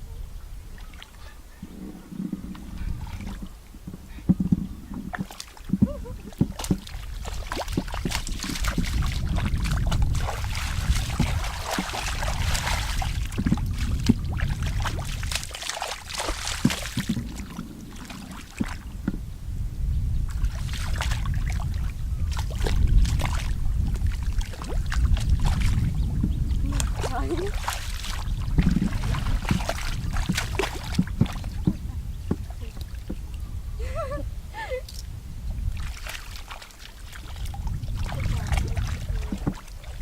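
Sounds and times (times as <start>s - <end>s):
water sloshing and splashing: 0.8s - 19.2s, 20.2s - 40.0s
low rumble: 1.6s - 15.4s, 16.6s - 36.0s, 37.3s - 40.0s.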